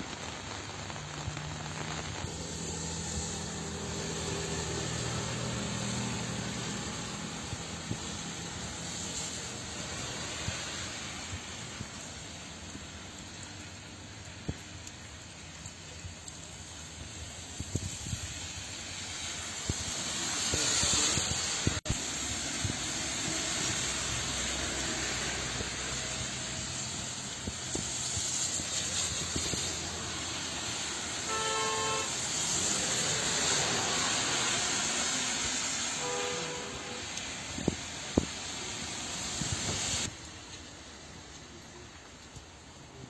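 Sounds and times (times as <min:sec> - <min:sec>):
tyres hissing on wet road: 0:00.0 - 0:43.0
car horn honk: 0:31.3 - 0:32.2, 0:36.0 - 0:37.1.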